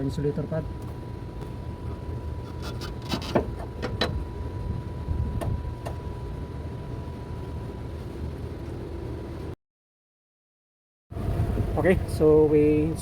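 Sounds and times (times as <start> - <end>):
steady low hum: 0.0 - 9.6, 11.1 - 13.0.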